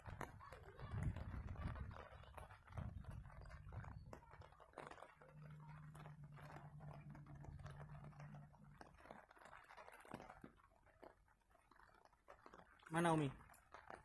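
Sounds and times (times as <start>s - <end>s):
faint low hum: 2.8s - 10.8s.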